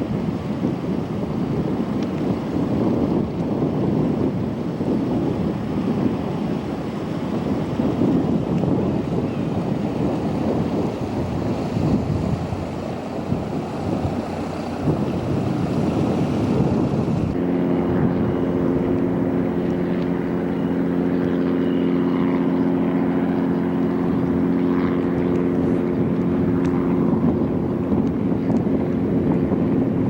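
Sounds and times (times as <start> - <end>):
engine drone: 0.0 - 30.0
wind buffeting microphone: 0.0 - 30.0.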